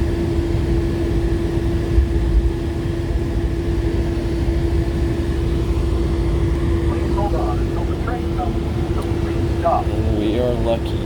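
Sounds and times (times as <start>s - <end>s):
monorail car running noise: 5.3s - 11.0s.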